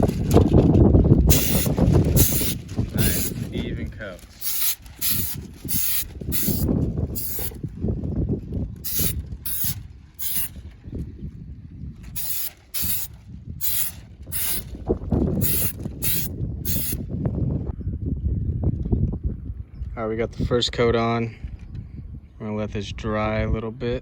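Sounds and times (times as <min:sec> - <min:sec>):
aerosol can spraying: 0:01.3 - 0:03.4, 0:04.4 - 0:07.6, 0:08.8 - 0:10.6, 0:12.2 - 0:14.7, 0:15.4 - 0:17.0.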